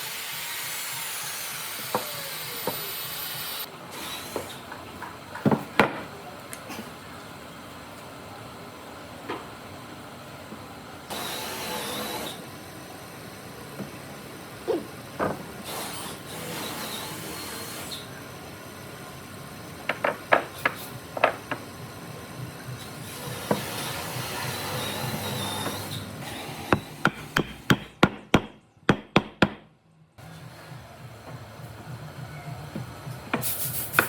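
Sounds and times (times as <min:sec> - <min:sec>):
hammer striking wood: 0:19.9 - 0:21.6, 0:26.7 - 0:29.7.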